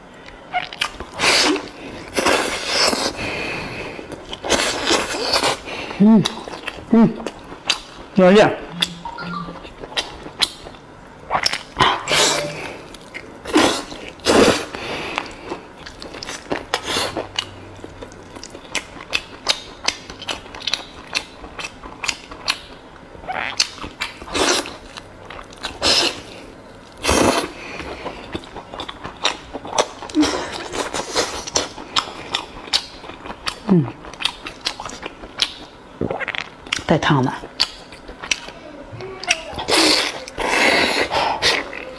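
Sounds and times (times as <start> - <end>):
close chewing and biting: 4.1 - 8.1, 9.6 - 22.8, 23.4 - 38.6.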